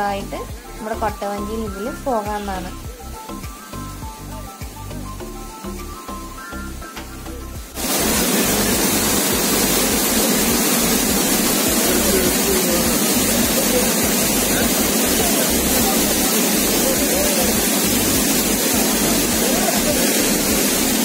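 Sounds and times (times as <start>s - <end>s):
river rushing over rocky falls: 7.8s - 21.0s.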